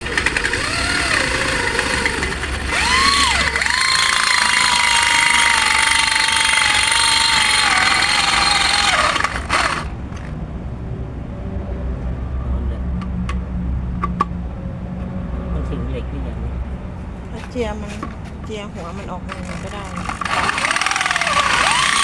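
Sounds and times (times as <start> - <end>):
angle grinder grinding steel: 0.0 - 10.3, 18.8 - 22.0.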